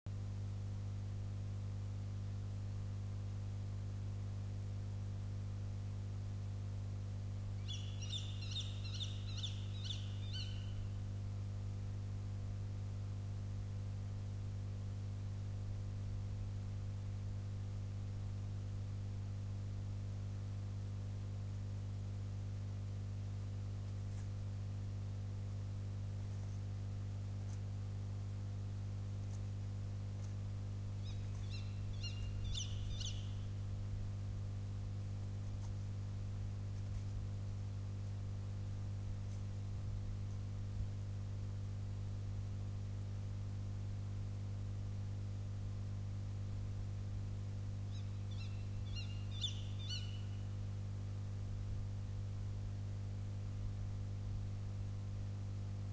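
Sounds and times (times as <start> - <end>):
electrical hum: 0.1 - 55.9
owl calls: 7.6 - 11.0, 31.0 - 33.5, 47.9 - 50.4.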